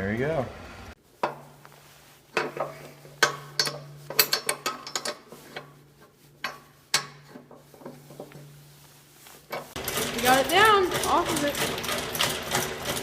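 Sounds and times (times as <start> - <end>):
steel parts clanking and rattling: 2.3 - 8.6, 9.5 - 13.0.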